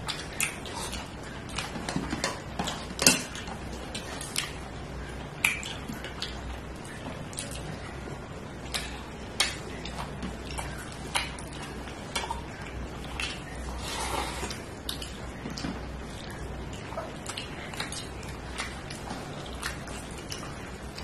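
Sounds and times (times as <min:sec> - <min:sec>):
wet chewing smacks: 0:00.0 - 0:08.0, 0:08.6 - 0:21.0
low steady hum: 0:00.0 - 0:21.0.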